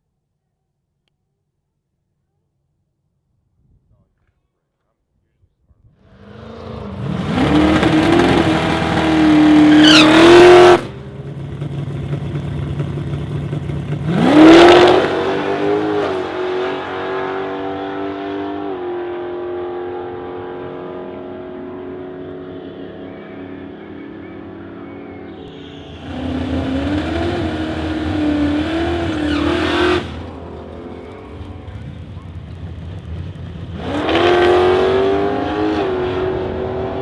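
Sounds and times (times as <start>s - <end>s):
drag car engine revving: 6.0s - 18.9s, 25.2s - 37.0s.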